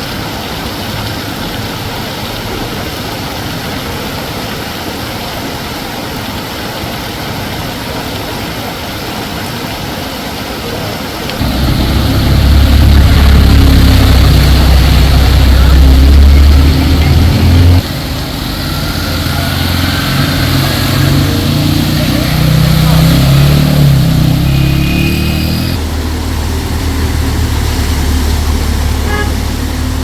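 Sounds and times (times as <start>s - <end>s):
heavy rain hissing: 0.0s - 30.0s
low engine rumble: 11.4s - 24.9s, 25.7s - 30.0s.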